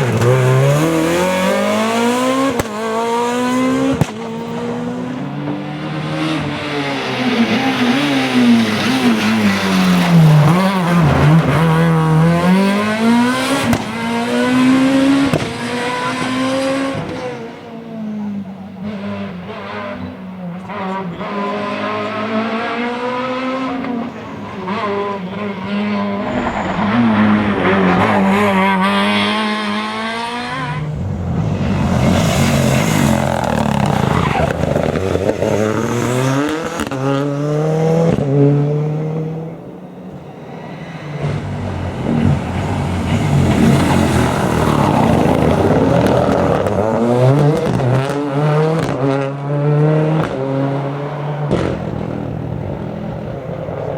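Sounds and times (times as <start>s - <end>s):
rally car engines revving: 0.0s - 53.9s
tyre squeal: 30.6s - 35.2s, 40.0s - 46.4s.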